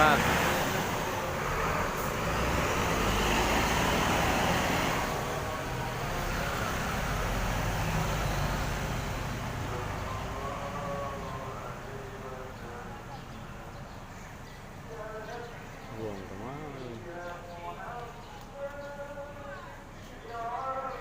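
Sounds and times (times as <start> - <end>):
coach diesel engine pulling away: 0.0 - 14.1
traffic noise: 0.0 - 21.0.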